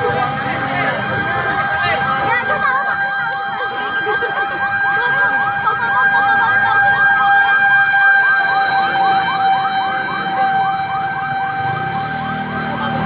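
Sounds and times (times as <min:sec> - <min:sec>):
fire truck siren yelping: 0:00.0 - 0:13.0
steady held siren tone: 0:00.0 - 0:13.0.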